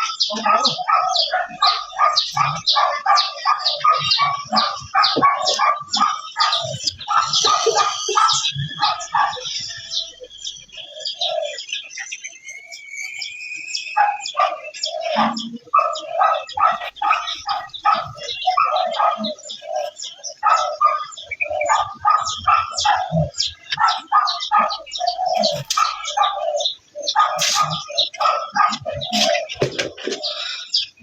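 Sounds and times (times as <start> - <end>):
bird chirping: 0.0 - 31.0.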